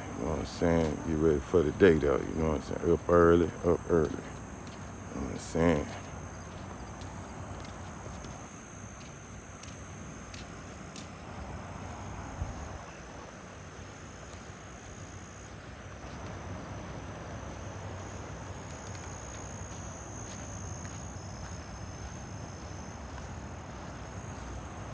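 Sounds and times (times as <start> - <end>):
insects chorus: 0.0 - 24.9
outdoor rush of noise: 0.0 - 24.9.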